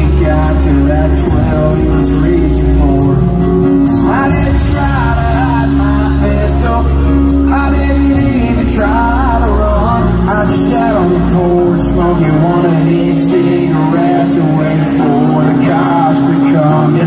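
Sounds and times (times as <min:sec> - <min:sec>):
live country band: 0:00.0 - 0:17.0
person singing: 0:00.0 - 0:17.0
steady bass line: 0:00.0 - 0:17.0.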